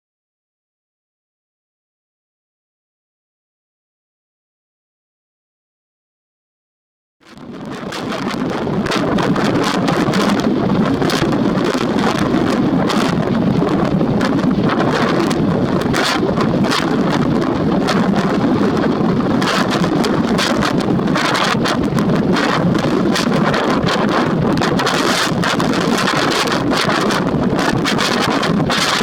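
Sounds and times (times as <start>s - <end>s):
strong wind buffeting microphone: 7.2s - 29.0s.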